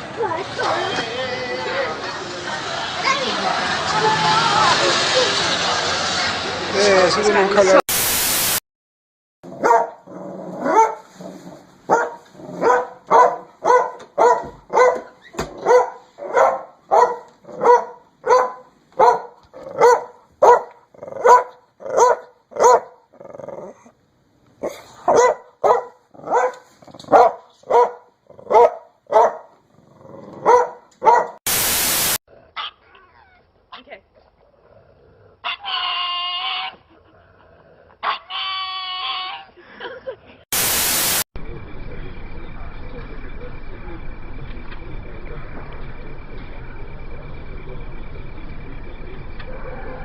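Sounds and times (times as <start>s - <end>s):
burst of static: 7.8s - 8.6s, 31.5s - 32.2s, 40.5s - 49.3s
dog barking: 9.5s - 11.1s, 11.9s - 23.0s, 24.6s - 29.6s, 30.4s - 31.4s, 38.0s - 38.4s.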